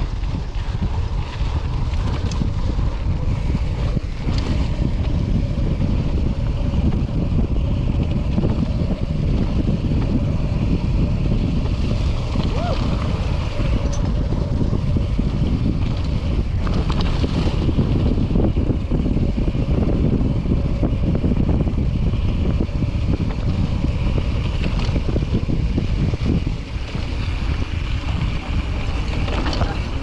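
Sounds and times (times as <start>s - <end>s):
bike clicks and knocks: 0.0s - 19.8s, 21.7s - 30.0s
wind rumble on microphone: 0.0s - 30.0s.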